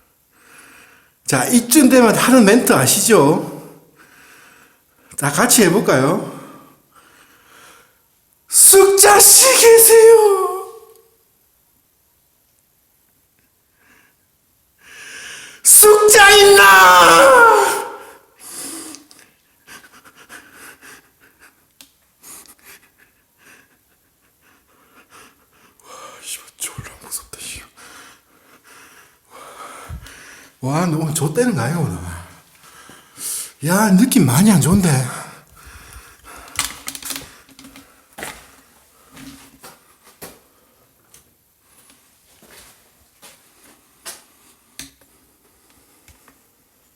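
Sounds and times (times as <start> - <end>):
person breathing: 4.0 - 4.9, 14.8 - 15.6, 27.7 - 30.6, 32.6 - 33.6, 35.2 - 38.1
faint scuffs and rustles: 37.3 - 44.7.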